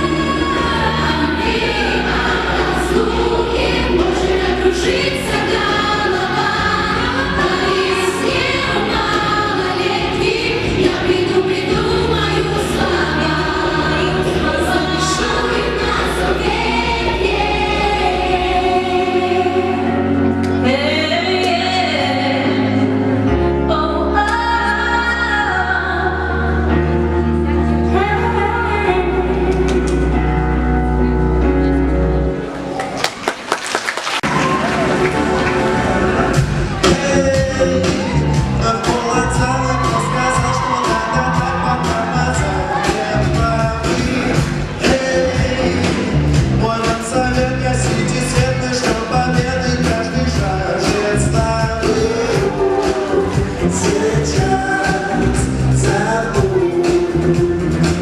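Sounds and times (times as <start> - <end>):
choir singing: 0.0 - 20.2, 51.8 - 56.7
backing track with bass notes: 0.0 - 33.3, 34.2 - 58.0.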